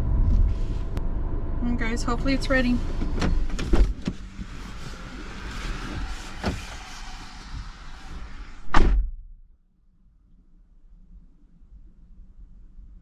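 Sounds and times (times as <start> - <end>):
car door slamming: 2.9 - 4.6, 5.6 - 7.8, 8.6 - 9.3.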